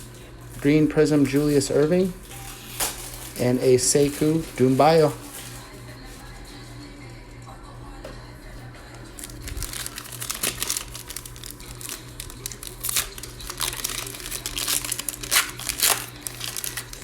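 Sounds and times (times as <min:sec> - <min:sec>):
plastic wrapper crinkling and tearing: 0:01.2 - 0:05.7, 0:09.2 - 0:17.0.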